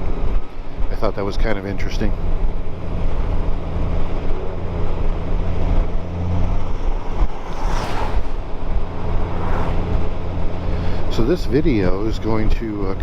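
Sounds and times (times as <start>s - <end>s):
wind buffeting microphone: 5.0s - 13.0s.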